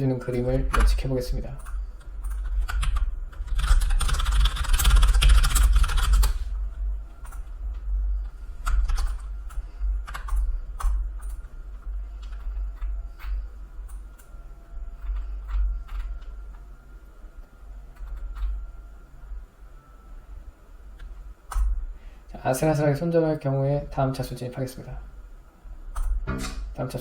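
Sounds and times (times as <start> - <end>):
low hum: 0.0 - 27.0
keyboard typing: 0.3 - 6.4, 7.2 - 14.4, 15.0 - 16.3, 17.9 - 18.6.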